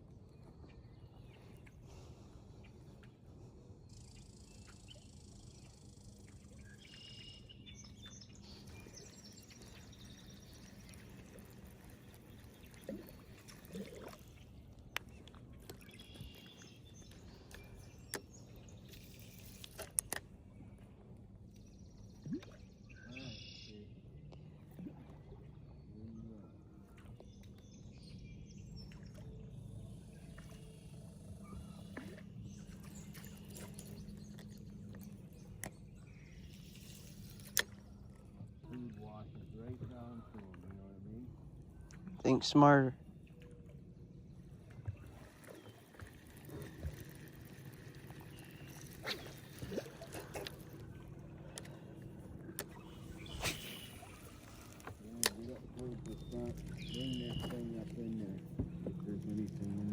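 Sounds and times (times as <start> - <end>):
birds chirping: 0.2 - 19.8, 25.6 - 59.9
steady low hum: 28.2 - 59.9.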